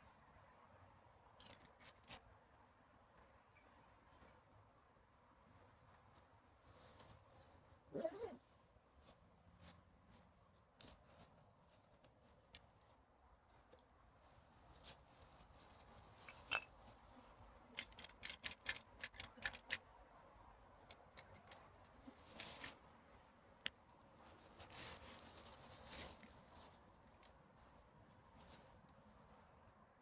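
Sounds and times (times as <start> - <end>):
dry litter crackling and rustling: 24.1 - 29.5.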